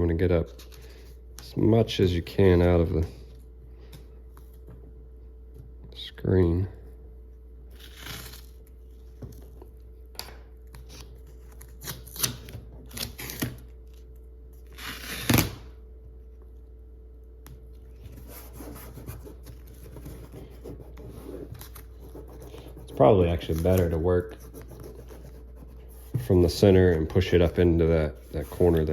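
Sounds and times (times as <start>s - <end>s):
faint steady hum: 0.0s - 28.9s
tape rubbing on glass: 18.0s - 27.0s.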